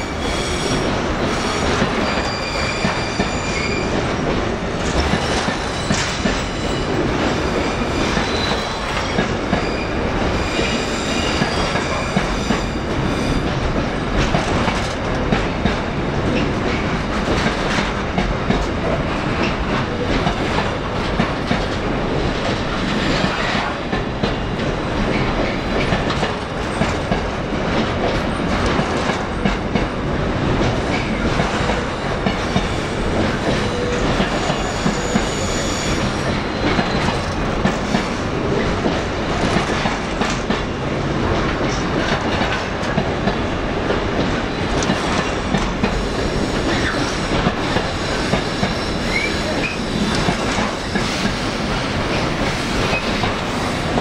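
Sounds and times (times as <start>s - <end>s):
train wheels clattering over joints: 0.2s - 9.8s, 30.5s - 54.0s
high wheel squeal: 1.4s - 3.9s, 33.6s - 37.0s, 48.2s - 50.0s.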